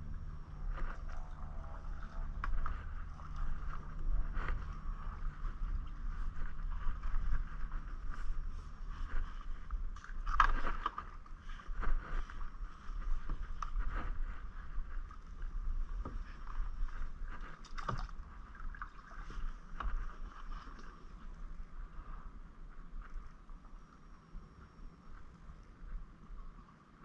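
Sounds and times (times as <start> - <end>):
low rumble and hiss: 0.0 - 27.0
paddle splashing in water: 0.1 - 15.2, 15.8 - 21.3.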